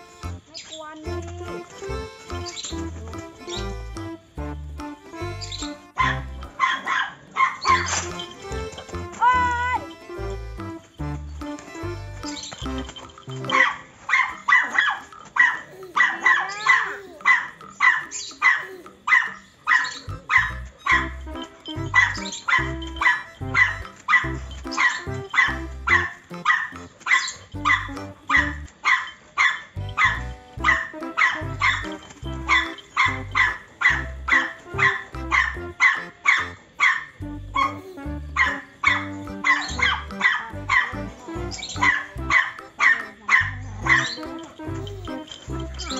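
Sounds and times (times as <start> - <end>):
music with bass beat: 1.1 - 6.6, 7.8 - 13.5, 20.1 - 26.9, 29.8 - 35.9, 37.2 - 42.7
dog barking: 6.0 - 8.1, 13.5 - 21.2, 21.9 - 45.9.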